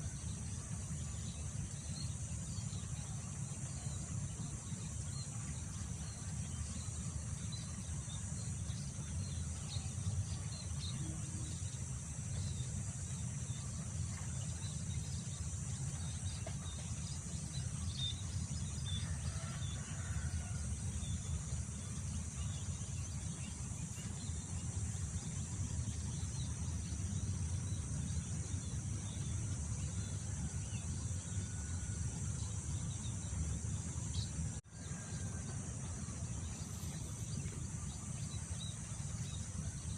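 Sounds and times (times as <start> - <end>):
high drone of insects: 0.0 - 39.9.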